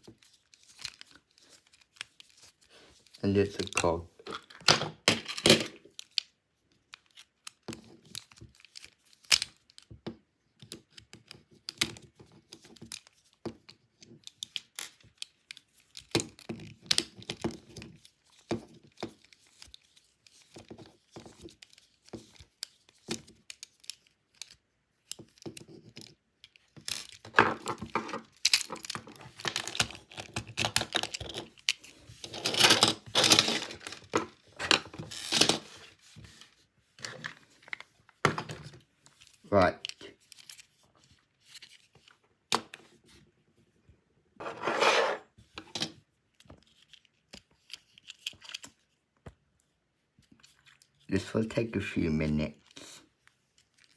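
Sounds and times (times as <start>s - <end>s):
toy train rattling and scraping: 26.8s - 37.2s, 44.4s - 46.0s.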